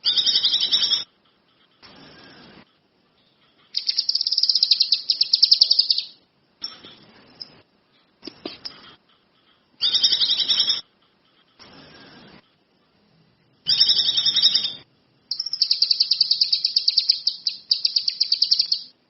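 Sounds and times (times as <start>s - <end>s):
songbird trilling: 3.8s - 6.2s, 13.7s - 18.9s.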